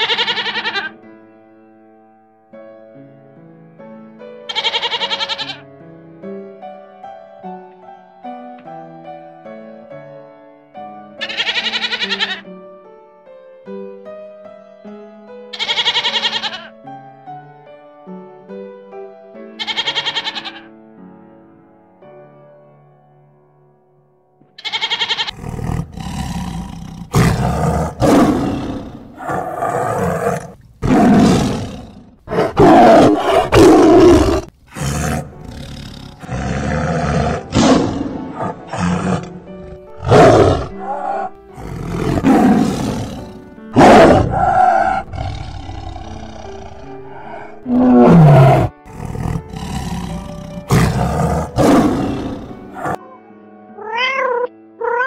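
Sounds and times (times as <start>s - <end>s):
cat meowing: 0.0s - 1.0s, 4.5s - 5.6s, 11.2s - 12.4s, 15.6s - 16.7s, 19.6s - 20.7s, 24.6s - 25.4s, 53.8s - 55.0s
soft background music: 0.0s - 55.0s
lions roaring: 25.3s - 53.0s.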